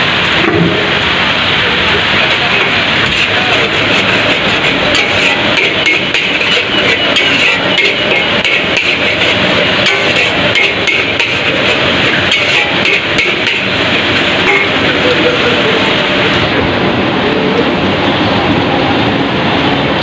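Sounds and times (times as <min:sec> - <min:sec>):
metal spatula clanking on a wok: 0:02.5 - 0:14.9.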